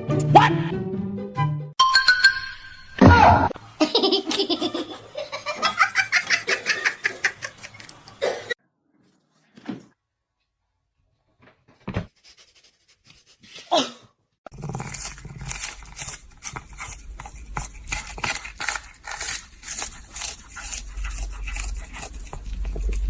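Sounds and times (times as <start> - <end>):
person laughing hard: 3.8 - 7.8.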